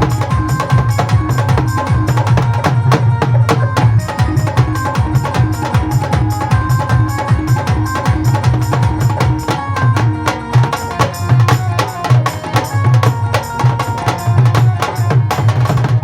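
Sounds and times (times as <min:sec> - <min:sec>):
drums and hand percussion: 0:00.0 - 0:16.0.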